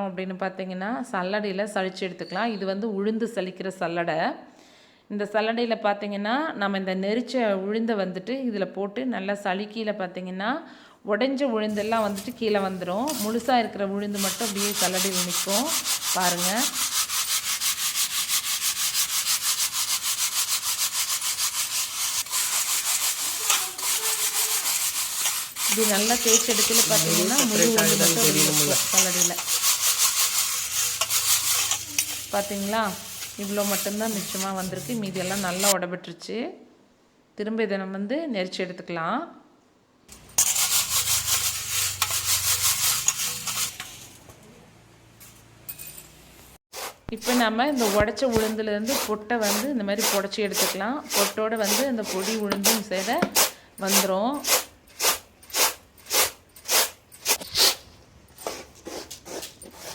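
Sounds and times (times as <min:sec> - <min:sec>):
grains rasping in a sieve: 0:11.7 - 0:35.8, 0:40.2 - 0:44.2, 0:46.8 - 0:57.7
stone quern grinding: 0:11.7 - 0:35.8, 0:40.1 - 0:44.1.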